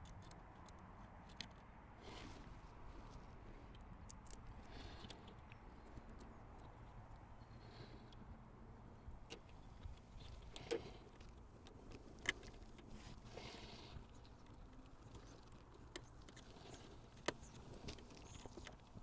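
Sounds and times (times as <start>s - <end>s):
clicks and light knocks of tools: 9.1s - 19.0s.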